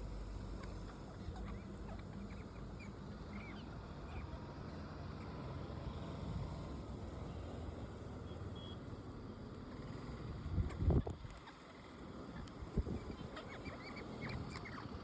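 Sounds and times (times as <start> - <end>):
low steady rumble: 0.0 - 3.2.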